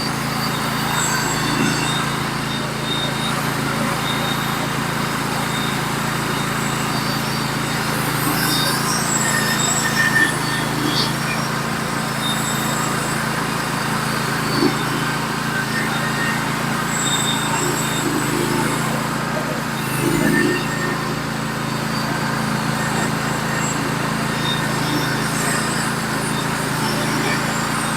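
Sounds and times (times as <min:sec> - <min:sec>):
bandsaw mill cutting log: 0:00.0 - 0:27.9.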